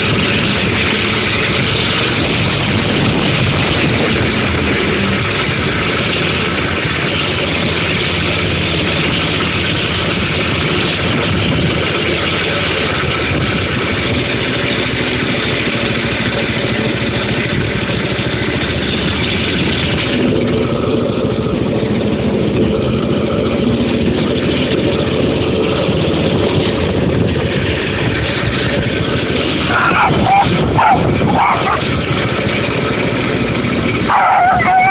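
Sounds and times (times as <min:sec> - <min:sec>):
dirt bike engine running: 0:00.0 - 0:34.9.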